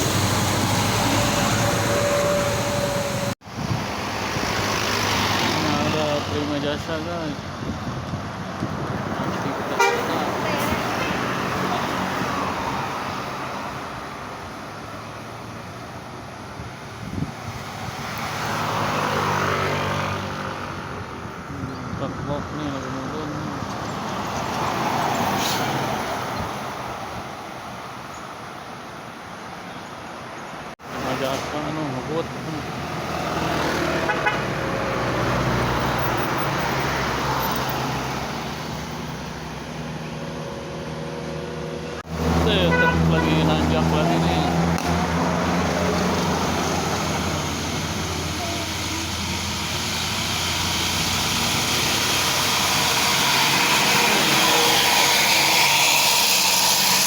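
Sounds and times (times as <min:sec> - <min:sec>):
vehicle passing: 0:00.0 - 0:07.4, 0:17.1 - 0:27.0, 0:30.8 - 0:57.0
heavy vehicle approaching: 0:00.0 - 0:16.2, 0:30.8 - 0:57.0.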